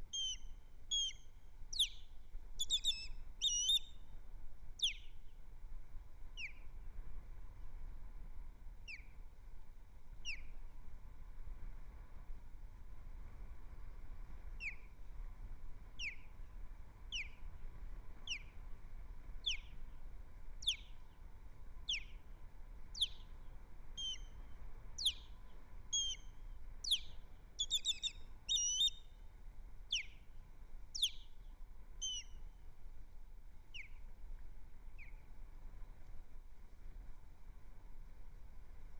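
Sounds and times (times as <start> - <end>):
osprey whistled chirps: 0.1 - 4.1, 4.8 - 5.2, 6.4 - 6.7, 14.6 - 14.9, 16.0 - 16.3, 17.1 - 17.4, 19.4 - 19.8, 20.6 - 21.0, 21.9 - 22.2, 23.0 - 23.3, 24.0 - 29.1, 29.9 - 30.3, 31.0 - 31.4, 32.0 - 32.5, 33.7 - 34.0, 35.0 - 35.2.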